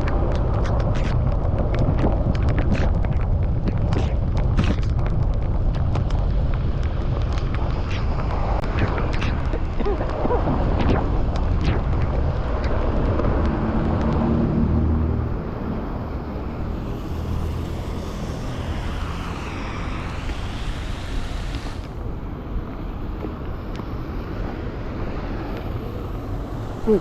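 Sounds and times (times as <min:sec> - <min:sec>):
traffic: 0:00.0 - 0:27.0
wind rumbling on microphone: 0:00.0 - 0:27.0
tyres hissing on wet road: 0:12.4 - 0:27.0.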